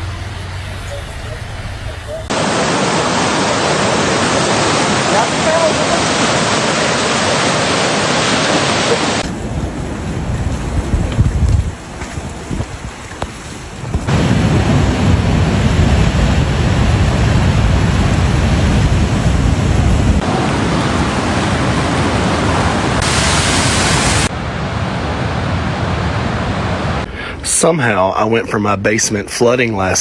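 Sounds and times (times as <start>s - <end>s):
rain: 0.0s - 18.3s, 20.2s - 24.3s
wind: 0.0s - 30.0s.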